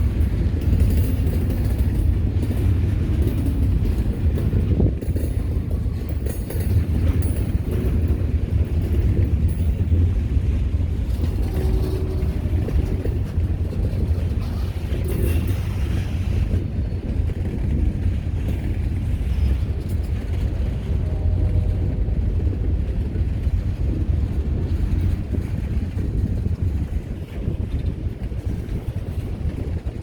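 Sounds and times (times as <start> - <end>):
train rumbling past: 0.0 - 30.0
wind buffeting microphone: 0.0 - 30.0.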